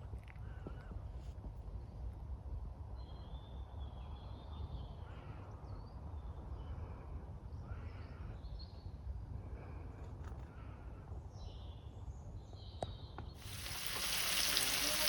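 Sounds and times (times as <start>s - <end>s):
birds calling: 13.4s - 15.0s.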